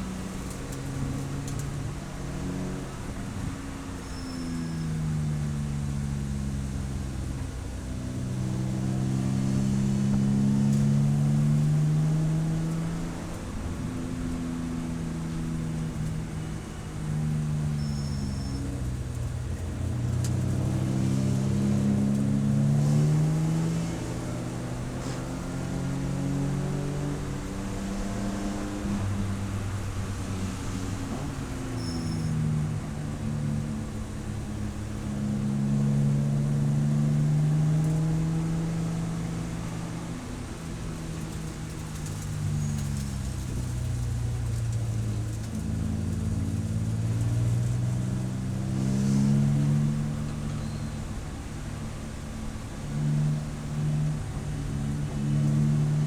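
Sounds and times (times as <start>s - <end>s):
race car engine accelerating: 15.1s - 56.0s.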